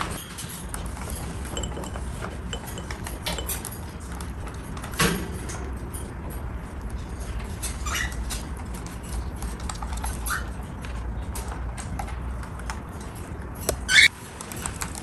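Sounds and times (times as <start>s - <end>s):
kitchen utensils and dishes clinking: 0.0s - 4.2s.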